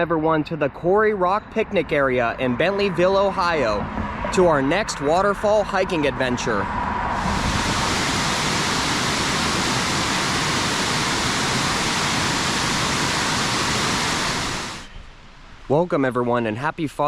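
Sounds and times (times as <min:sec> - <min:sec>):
waterfall rushing: 0:07.2 - 0:14.9.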